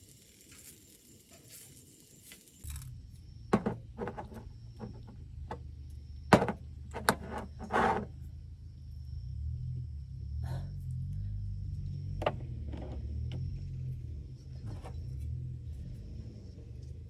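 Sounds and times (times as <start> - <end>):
wooden knocks and clatter: 3.5 - 5.6, 6.3 - 8.1, 12.2 - 13.0, 14.6 - 15.0
scraping rattle: 3.5 - 5.7, 6.3 - 8.2, 14.6 - 15.1.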